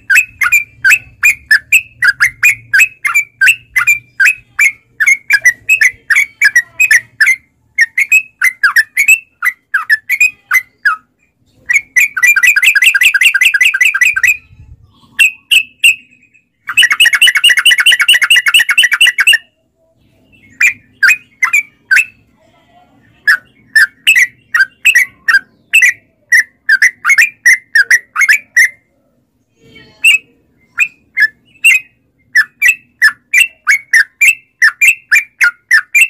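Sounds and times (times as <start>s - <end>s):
bird rolling trills: 0.0s - 11.1s.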